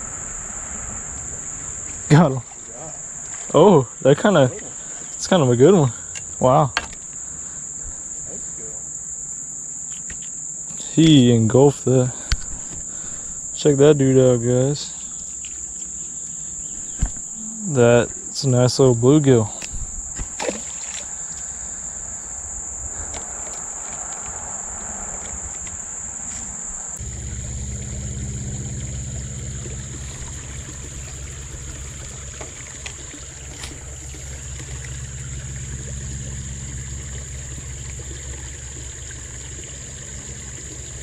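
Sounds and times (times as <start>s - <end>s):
high-pitched insect chorus: 0.0s - 41.0s
low steady rumble: 26.9s - 41.0s.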